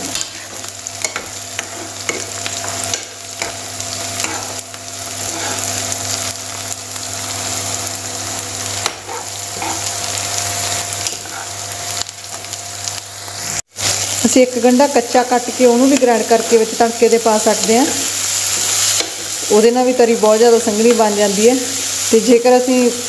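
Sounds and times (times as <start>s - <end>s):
vegetables sizzling in hot oil: 0.0s - 23.0s
metal spoon scraping a pan: 0.1s - 3.6s, 4.2s - 4.6s, 5.2s - 5.9s, 8.8s - 10.0s.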